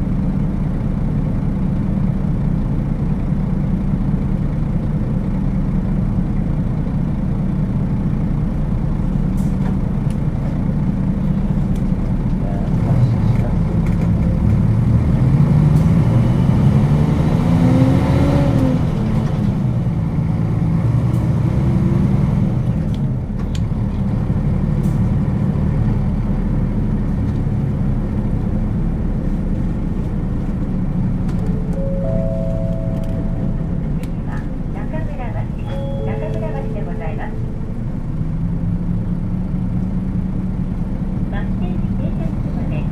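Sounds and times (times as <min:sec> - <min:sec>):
bus diesel engine: 0:00.0 - 0:42.9
road noise: 0:00.0 - 0:42.9
two-note electronic chime: 0:31.6 - 0:33.8, 0:35.6 - 0:37.6.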